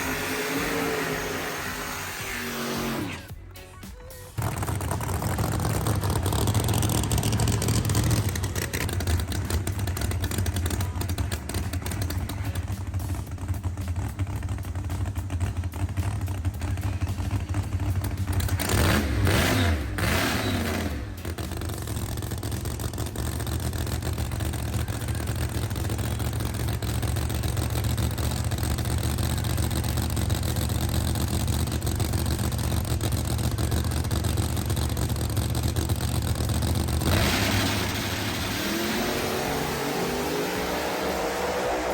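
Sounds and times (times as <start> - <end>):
drag racing engines rumbling: 0.0 - 41.9
racing car passing by: 37.1 - 41.9.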